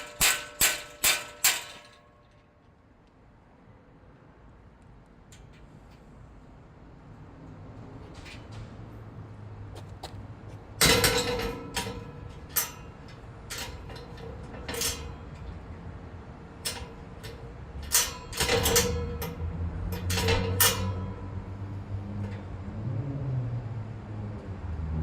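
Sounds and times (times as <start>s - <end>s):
metal clanks and taps: 0.0s - 2.5s, 10.8s - 15.7s, 16.6s - 21.4s.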